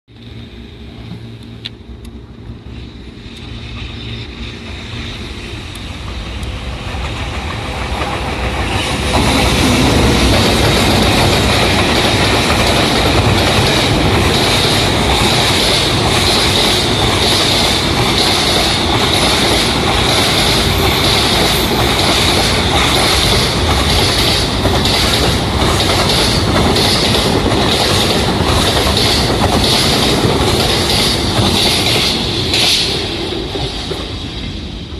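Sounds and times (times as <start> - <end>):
freight train rumble: 0.1 - 34.9
wagon wheels clickety-clack: 10.9 - 32.1.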